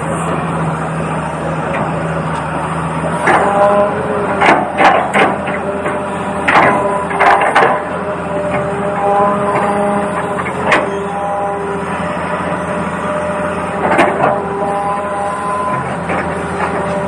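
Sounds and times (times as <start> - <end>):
small electric motors whining: 5.5 - 17.0.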